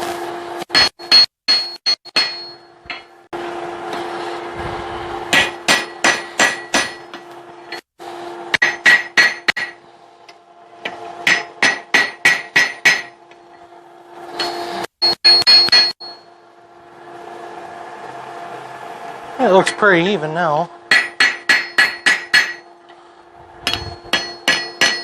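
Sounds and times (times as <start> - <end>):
hammer forging steel on anvil: 0.7 - 3.3, 5.3 - 13.6, 14.3 - 16.2, 20.9 - 23.0, 23.6 - 25.0.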